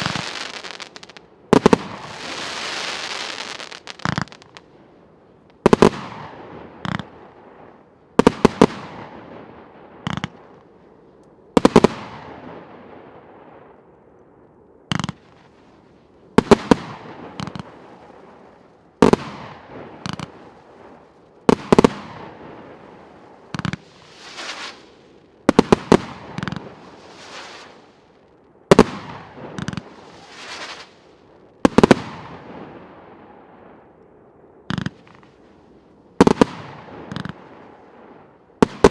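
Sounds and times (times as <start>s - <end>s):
firework bangs: 0.0s - 4.7s, 5.6s - 10.6s, 11.6s - 13.6s, 14.9s - 15.6s, 16.4s - 33.6s, 34.7s - 35.5s, 36.2s - 38.9s.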